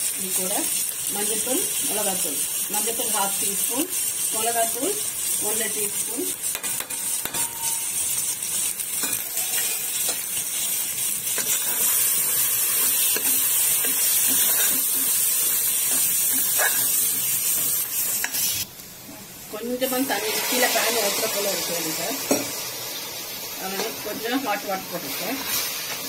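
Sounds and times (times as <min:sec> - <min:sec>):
food sizzling in oil: 0:00.0 - 0:26.0
spatula scraping a metal pot: 0:15.9 - 0:18.4.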